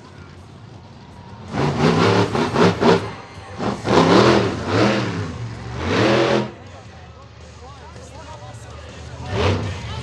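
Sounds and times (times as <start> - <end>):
truck engine revving: 1.4 - 6.8, 9.2 - 10.0.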